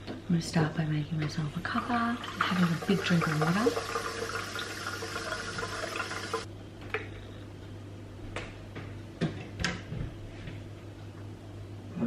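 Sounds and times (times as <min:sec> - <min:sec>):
water running from tap: 0:01.5 - 0:06.5.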